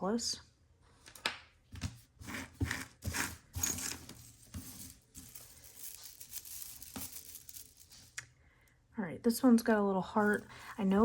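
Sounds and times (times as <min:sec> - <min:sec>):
jewelry clicking and clattering: 0:02.7 - 0:08.2.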